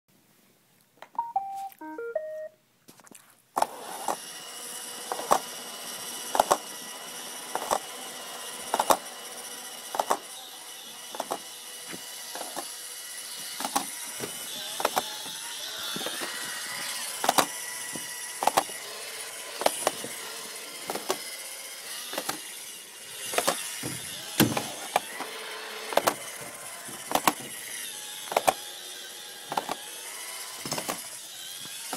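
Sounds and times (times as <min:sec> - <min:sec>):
robot vacuum short beeps: 0:01.2 - 0:02.5
robot vacuum motor whir: 0:03.6 - 0:31.9.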